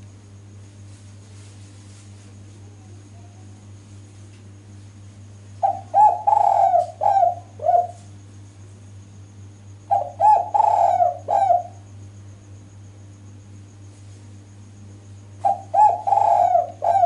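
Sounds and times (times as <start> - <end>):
steady low hum: 0.0 - 17.0
dove cooing: 5.6 - 8.1, 9.9 - 11.9, 15.4 - 17.0.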